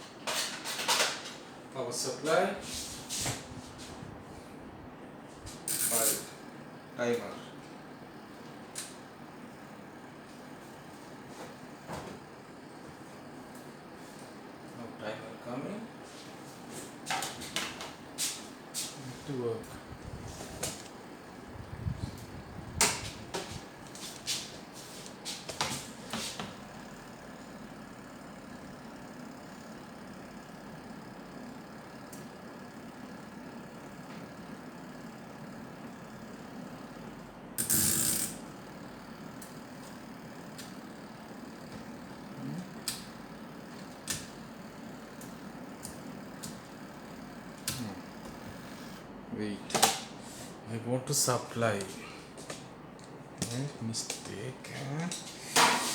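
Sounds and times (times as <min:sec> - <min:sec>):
steady low hum: 0:00.0 - 0:55.9
timer clicks and knocks: 0:25.6 - 0:49.1.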